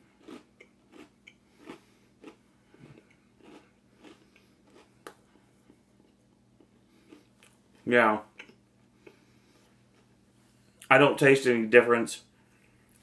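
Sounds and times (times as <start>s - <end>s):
person crunching dry cereal: 0.2s - 2.4s, 3.0s - 5.0s.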